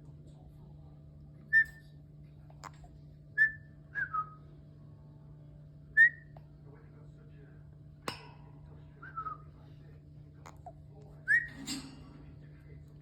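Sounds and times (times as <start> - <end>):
parrot whistling: 3.4 - 4.4, 11.3 - 11.6.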